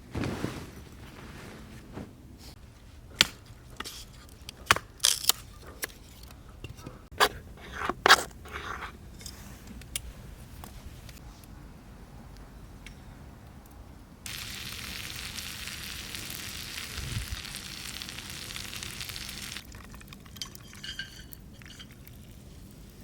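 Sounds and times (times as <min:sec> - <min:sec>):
scraping rustles: 0:00.0 - 0:02.9.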